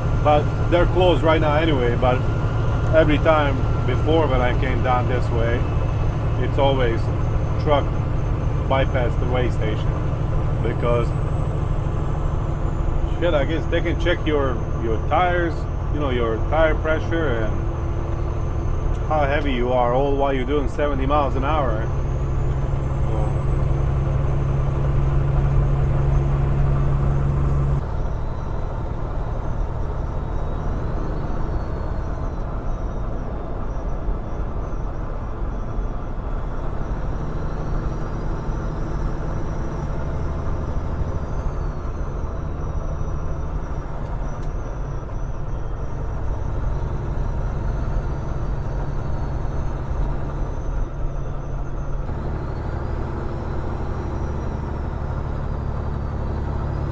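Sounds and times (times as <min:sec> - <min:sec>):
road noise inside cab: 0:00.0 - 0:56.9
truck engine drone: 0:00.0 - 0:56.9.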